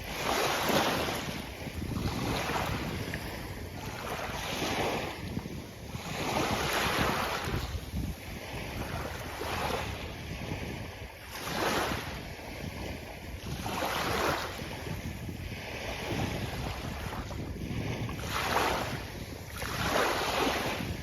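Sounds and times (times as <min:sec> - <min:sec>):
waves breaking on a beach: 0:00.0 - 0:21.0
wind rumble on microphone: 0:00.0 - 0:21.0.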